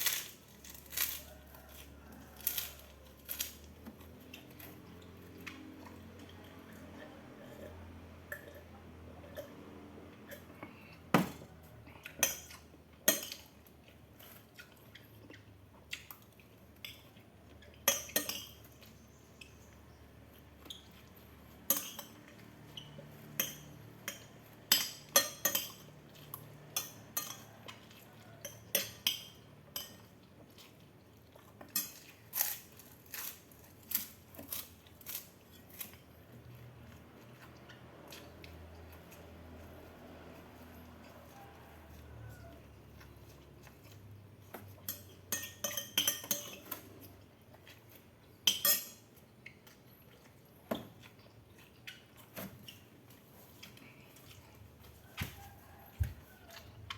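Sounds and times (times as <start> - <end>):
cutlery clinking on a plate: 21.6 - 25.9, 26.7 - 30.1, 44.6 - 46.9, 48.4 - 49.1.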